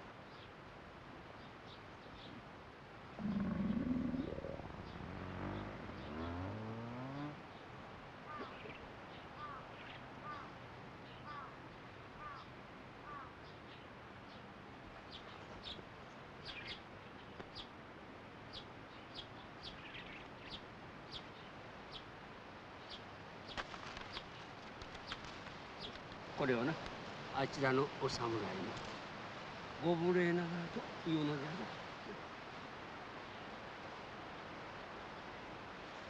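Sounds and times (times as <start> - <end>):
faint outdoor background: 0.0 - 36.0
low sound rising in pitch: 3.2 - 7.4
small birds chirping: 3.2 - 17.8, 18.5 - 22.1, 22.8 - 26.8.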